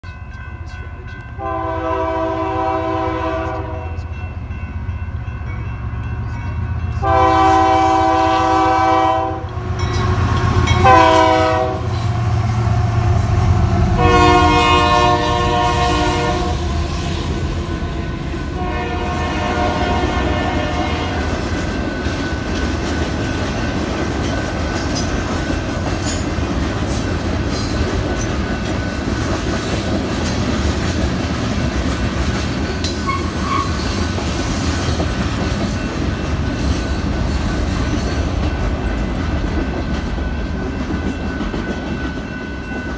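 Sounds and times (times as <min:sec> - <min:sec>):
locomotive air horn blasts: 0:01.4 - 0:04.1, 0:07.0 - 0:09.6, 0:10.7 - 0:12.0, 0:14.0 - 0:17.0, 0:18.5 - 0:21.3.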